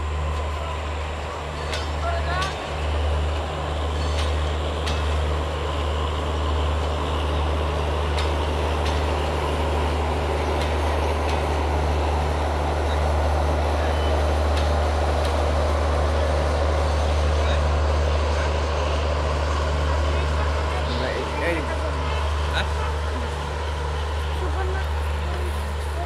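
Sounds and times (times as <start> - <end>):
train coaches rumbling past: 0.0 - 26.0
wheels clicking over rail joints: 3.4 - 5.4, 8.0 - 13.1.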